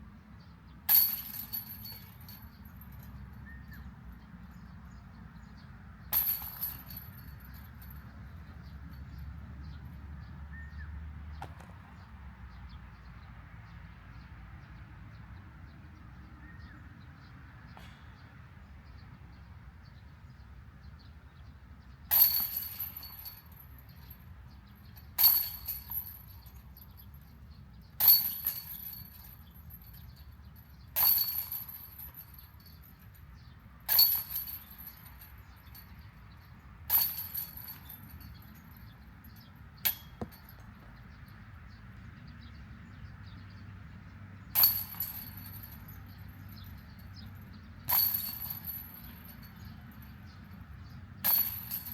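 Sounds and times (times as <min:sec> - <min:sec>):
disc rattling basket chains: 0:00.9 - 0:03.4, 0:06.1 - 0:08.2, 0:22.1 - 0:41.0, 0:44.5 - 0:51.9.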